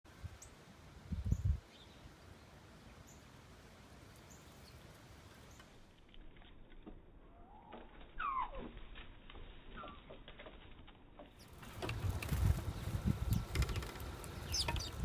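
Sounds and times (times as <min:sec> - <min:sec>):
outdoor background noise: 0:00.0 - 0:15.0
birds chirping: 0:01.2 - 0:03.4, 0:04.0 - 0:05.9, 0:11.4 - 0:15.0.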